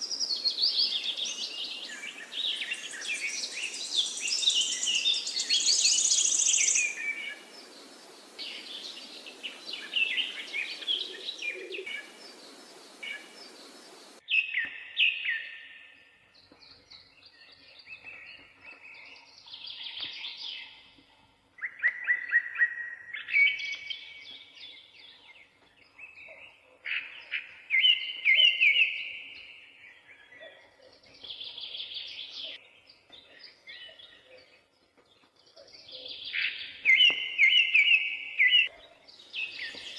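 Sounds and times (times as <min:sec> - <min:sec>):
steady hiss: 0:05.6 - 0:14.2.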